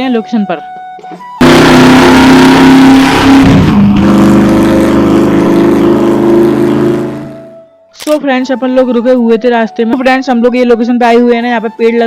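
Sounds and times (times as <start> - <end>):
car engine revving hard: 1.4 - 7.6.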